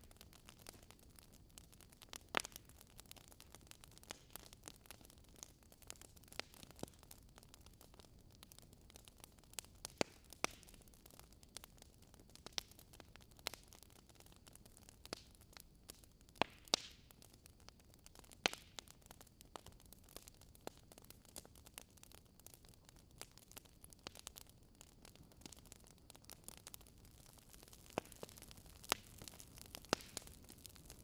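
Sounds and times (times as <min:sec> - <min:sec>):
wood fire crackling and popping: 0:00.0 - 0:31.0.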